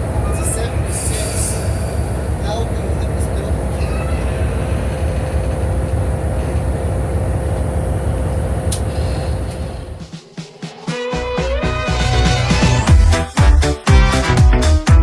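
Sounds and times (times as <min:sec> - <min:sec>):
faint steady whine: 0:00.0 - 0:10.2
train wheels rumbling on rail: 0:00.0 - 0:10.2.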